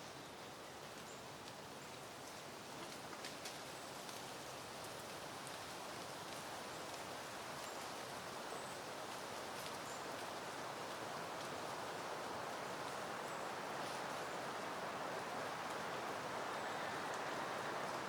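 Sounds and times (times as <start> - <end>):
wind rustling through foliage: 0.0 - 18.0
faint ticks: 16.5 - 18.0.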